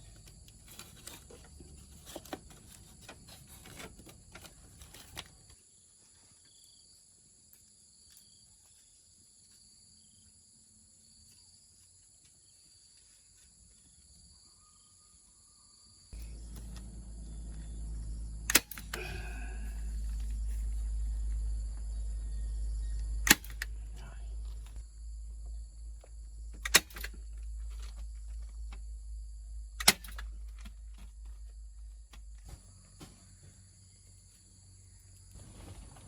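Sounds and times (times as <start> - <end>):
high insect buzzing: 16.2 - 29.9
low rumble: 16.2 - 32.5.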